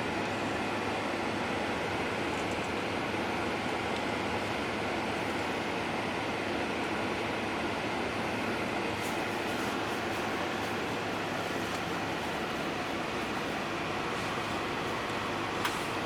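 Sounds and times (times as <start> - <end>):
bus engine and road noise: 0.0 - 16.0.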